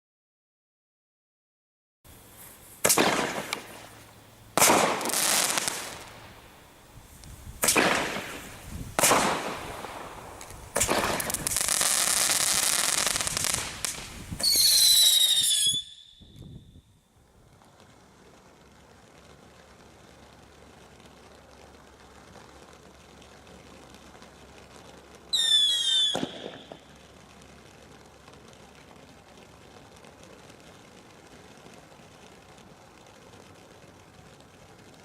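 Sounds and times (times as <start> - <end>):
fireworks bangs: 2.1 - 16.8, 19.1 - 35.0
fireworks hissing crackle: 2.1 - 35.0
shrill firework whistle: 14.3 - 16.9, 25.3 - 26.9.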